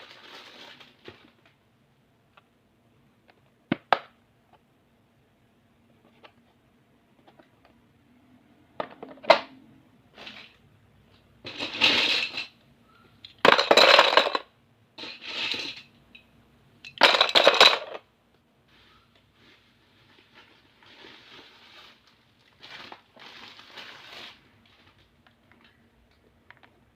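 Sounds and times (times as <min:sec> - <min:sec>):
stationery items clattering: 0:00.0 - 0:01.6, 0:08.7 - 0:12.6, 0:13.3 - 0:16.0, 0:16.9 - 0:18.1.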